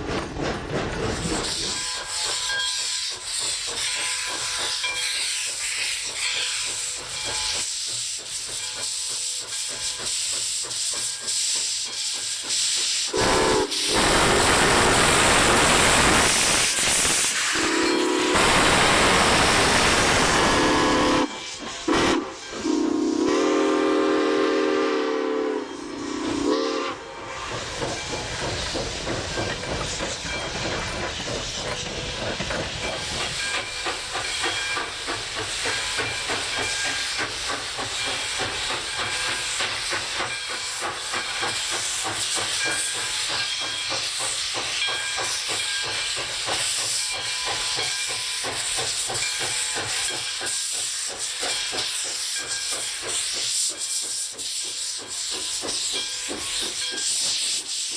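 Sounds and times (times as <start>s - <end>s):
steam hiss: 0.0s - 57.9s
steam locomotive whistle: 13.1s - 27.3s.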